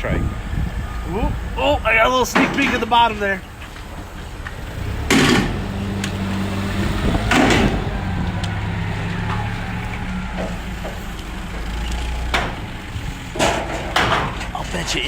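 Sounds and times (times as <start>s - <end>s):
loud short clattering: 5.0s - 5.6s, 13.3s - 15.0s.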